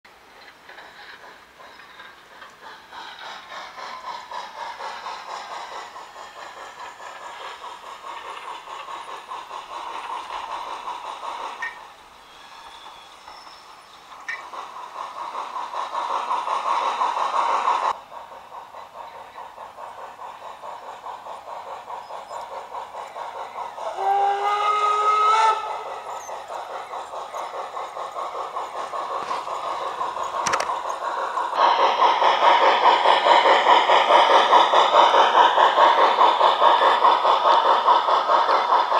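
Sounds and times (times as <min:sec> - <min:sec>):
model steam locomotive chuffing: 0:00.1 - 0:38.9
steam hiss: 0:00.1 - 0:38.9
steam locomotive chime whistle: 0:11.6 - 0:13.7, 0:23.9 - 0:25.8.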